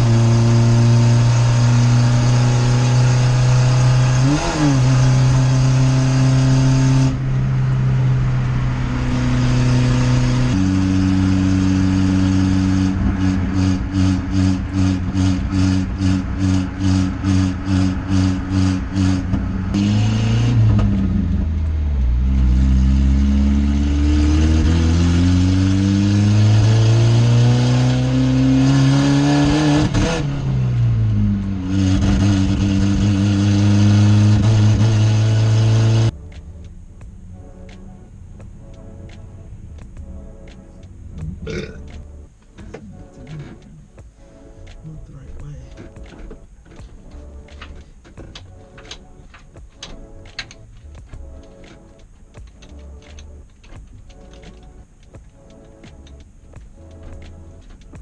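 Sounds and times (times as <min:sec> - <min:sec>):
loud car engine droning: 0:00.0 - 0:43.6.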